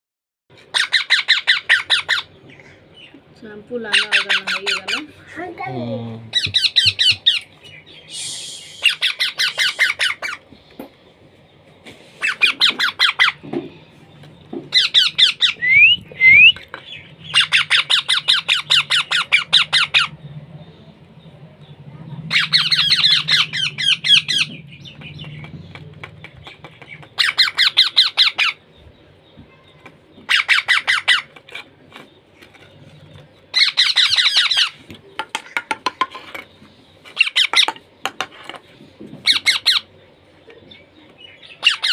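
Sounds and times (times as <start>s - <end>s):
parrot squawking: 0.7s - 2.4s, 3.8s - 5.5s, 6.3s - 7.5s, 8.7s - 10.4s, 12.2s - 13.4s, 14.7s - 16.5s, 17.2s - 20.2s, 22.3s - 24.6s, 27.2s - 28.6s, 30.3s - 31.4s, 33.5s - 34.8s, 39.2s - 39.9s, 41.6s - 41.9s
rising whistles: 15.6s - 16.6s.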